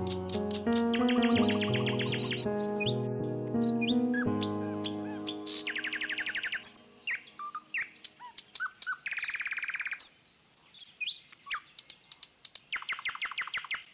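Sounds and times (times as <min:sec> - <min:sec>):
fast bird trill: 0:00.0 - 0:02.9, 0:04.8 - 0:10.1
bird chirps and whistles: 0:05.3 - 0:08.0.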